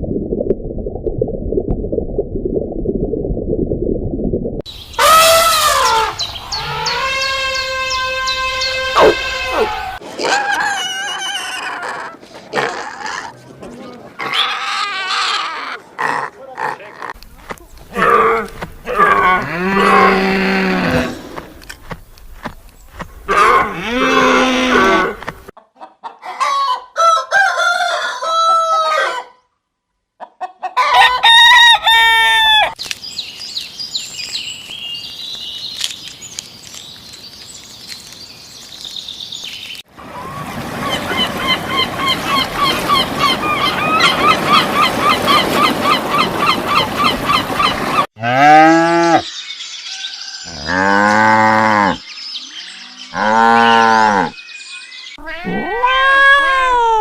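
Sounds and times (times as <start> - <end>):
chickens clucking: 25.5 - 26.8, 30.2 - 31.0
rooster crowing: 26.3 - 29.4, 30.8 - 32.8.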